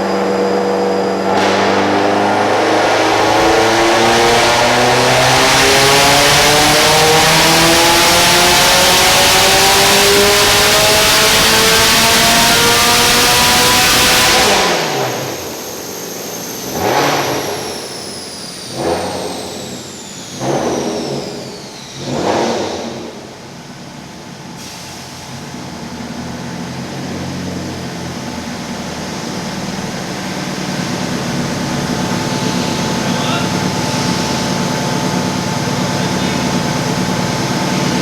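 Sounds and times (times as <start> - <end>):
car engine idling: 0.0 - 13.9, 23.0 - 38.0
car engine revving: 0.0 - 24.8, 25.4 - 38.0
engine throttle blips: 0.0 - 38.0
high turbo whine: 0.0 - 38.0.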